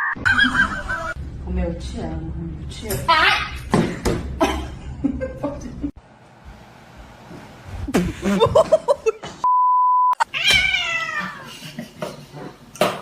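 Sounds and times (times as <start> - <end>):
electronic censor bleep: 9.4 - 10.2.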